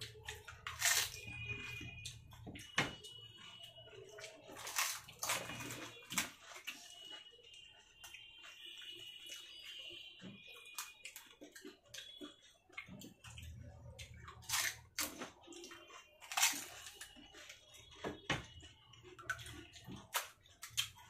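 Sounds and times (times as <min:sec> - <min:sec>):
water splashing and slurping: 0:00.0 - 0:21.0
crisp shells crunching: 0:04.6 - 0:05.9, 0:16.2 - 0:17.0.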